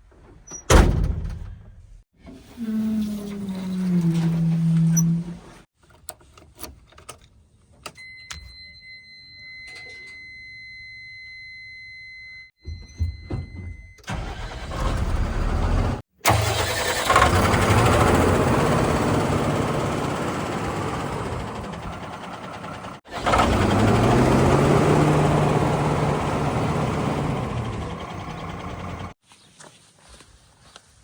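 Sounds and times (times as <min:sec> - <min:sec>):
heavy diesel engine revving: 0:14.1 - 0:29.2.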